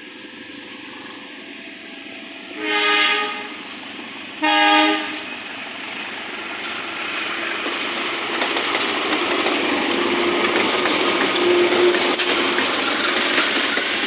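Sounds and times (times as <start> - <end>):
train rumbling and rattling: 0.0 - 14.0
diesel locomotive horn blasts: 2.5 - 3.7, 4.4 - 5.3.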